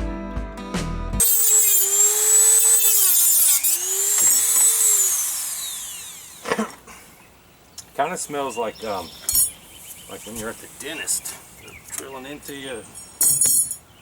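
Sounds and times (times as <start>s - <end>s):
music: 0.0s - 1.3s
rotary tool cutting metal: 1.2s - 6.5s.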